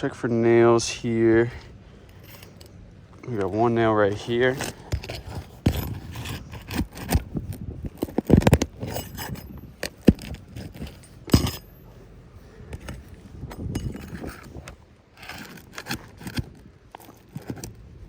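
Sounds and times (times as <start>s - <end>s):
metal scraping and clicking: 2.0s - 11.8s, 12.7s - 17.8s.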